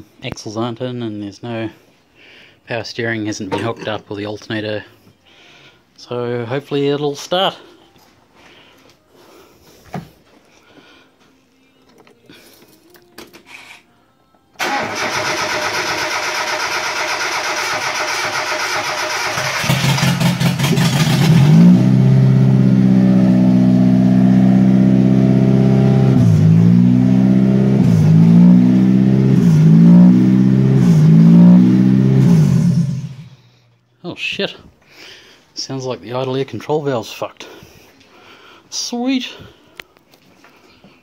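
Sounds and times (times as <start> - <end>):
car engine cranking and starting: 14.6 - 33.4.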